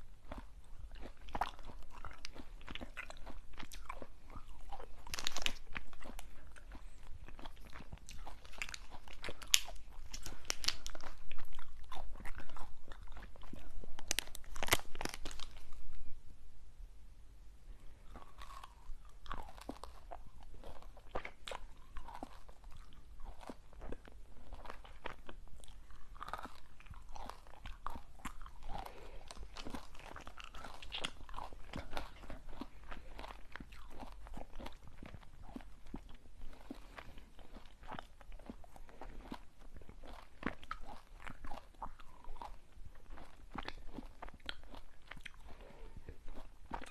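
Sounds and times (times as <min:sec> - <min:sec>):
crunching and chewing crisp snacks: 0:00.0 - 0:16.0, 0:17.9 - 0:46.9.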